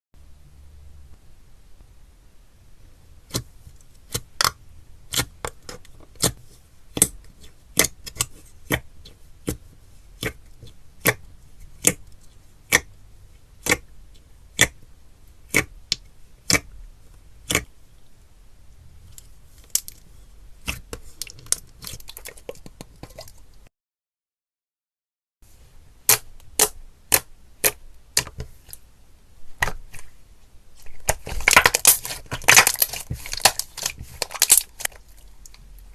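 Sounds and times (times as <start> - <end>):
slime popping and crackling: 30.9 - 35.6.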